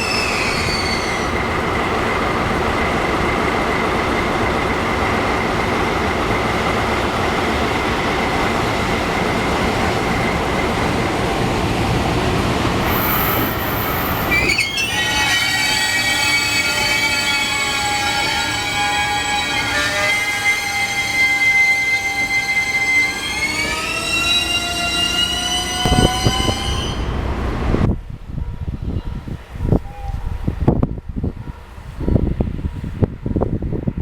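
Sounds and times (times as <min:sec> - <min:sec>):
wheels squealing on rails: 0:00.0 - 0:05.8, 0:12.8 - 0:27.7
train wheels rumbling on rails: 0:00.0 - 0:34.0.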